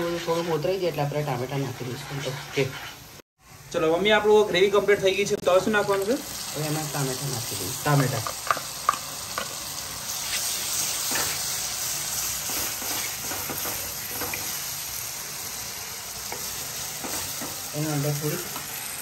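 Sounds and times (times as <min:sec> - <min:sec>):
wooden spatula stirring: 0:00.0 - 0:03.2
food sizzling in hot oil: 0:00.0 - 0:19.0.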